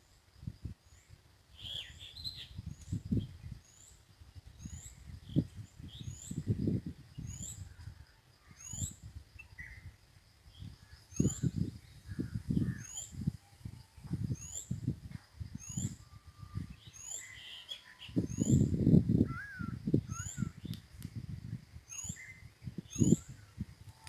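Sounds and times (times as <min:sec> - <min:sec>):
wind rumble on microphone: 0:00.3 - 0:24.0
high rising bird chirp: 0:01.6 - 0:04.0, 0:10.5 - 0:20.8, 0:21.4 - 0:23.7
lower bird calls: 0:01.6 - 0:04.0, 0:04.6 - 0:14.8, 0:15.5 - 0:20.9, 0:21.9 - 0:24.0.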